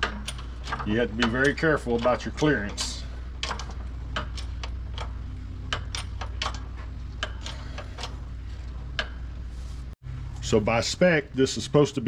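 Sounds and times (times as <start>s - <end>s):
metal tools clicking: 0.0s - 5.1s
steady low hum: 0.0s - 12.0s.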